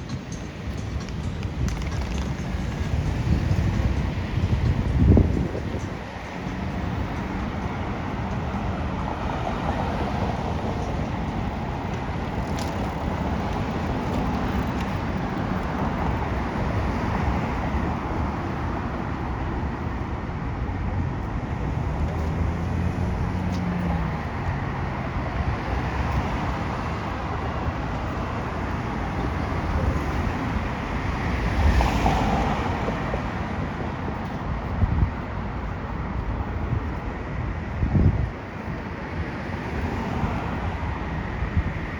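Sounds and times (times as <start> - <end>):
cars passing: 0.0 - 41.9
loud vehicle passing: 21.6 - 26.9.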